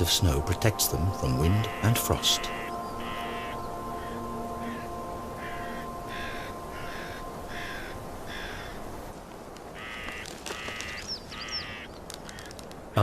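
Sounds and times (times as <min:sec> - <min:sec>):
bird calls with sliding high notes: 0:00.0 - 0:09.1
harsh bird calls: 0:00.0 - 0:09.1, 0:09.7 - 0:13.0.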